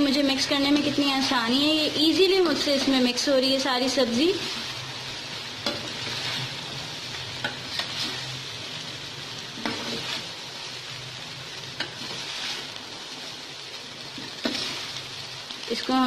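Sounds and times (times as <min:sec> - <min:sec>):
rice and vegetables sizzling: 0:00.0 - 0:16.0
spoon scraping and knocking pan: 0:09.6 - 0:10.3, 0:14.2 - 0:14.9.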